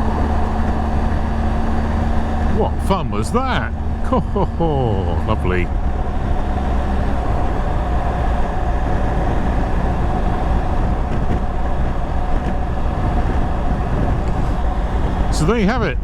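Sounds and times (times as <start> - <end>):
motorcycle engine drone: 0.0 - 16.0
wind rushing over microphone: 5.2 - 16.0.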